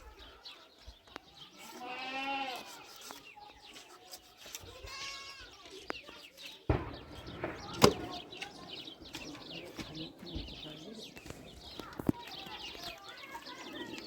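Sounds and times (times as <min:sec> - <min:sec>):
goat bleating: 0:01.7 - 0:02.9, 0:04.7 - 0:05.6
sharp knock: 0:06.7 - 0:10.6
sudden thump: 0:06.7 - 0:11.4.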